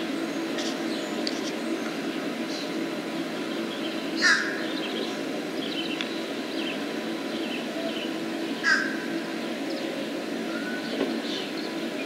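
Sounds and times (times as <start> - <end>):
steady low hum: 0.0 - 12.0
bird harsh calls: 3.5 - 12.0.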